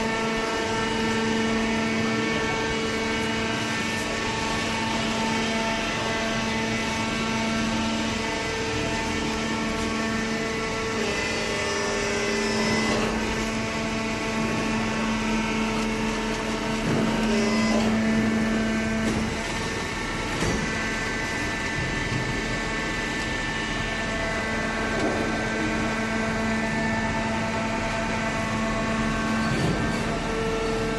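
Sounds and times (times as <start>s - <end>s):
hydraulic baler humming: 0.0s - 30.9s.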